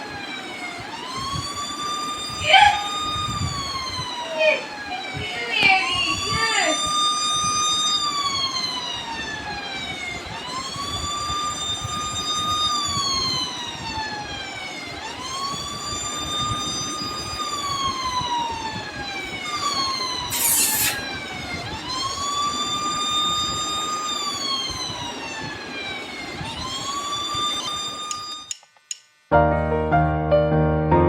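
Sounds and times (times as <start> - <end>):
electronic siren wailing: 0.0 - 28.5
brief hiss: 20.3 - 21.1.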